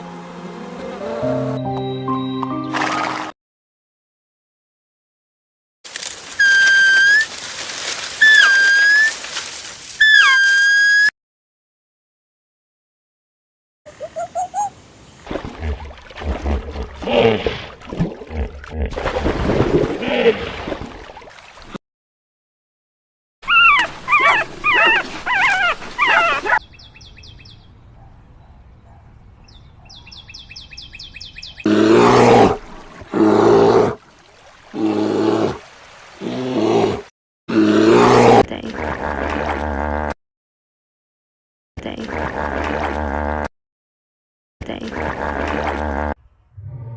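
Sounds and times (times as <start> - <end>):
dog-like whimpering and yipping: 8.2 - 9.1, 10.0 - 11.1, 23.4 - 26.6
high warbling animal calls: 8.2 - 9.2, 10.0 - 11.1, 14.0 - 14.7.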